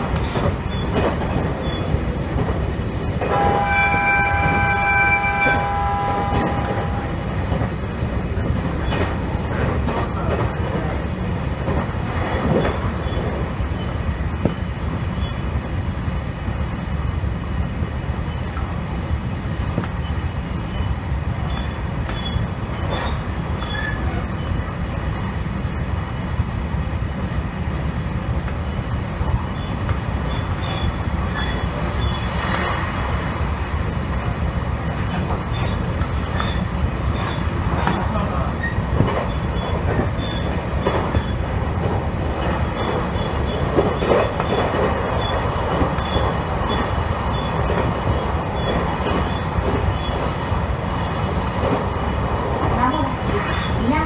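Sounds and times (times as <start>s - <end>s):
train rumbling on tracks: 0.0s - 54.0s
train horn: 3.2s - 7.3s
wheels clicking over rails: 34.8s - 54.0s.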